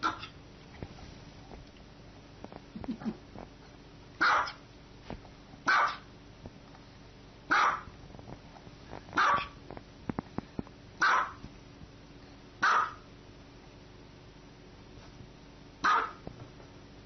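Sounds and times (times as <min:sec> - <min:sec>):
small dog barking: 0:00.0 - 0:00.4, 0:04.2 - 0:04.6, 0:05.6 - 0:06.1, 0:07.5 - 0:07.9, 0:09.2 - 0:09.6, 0:11.0 - 0:11.4, 0:12.6 - 0:13.1, 0:15.8 - 0:16.2.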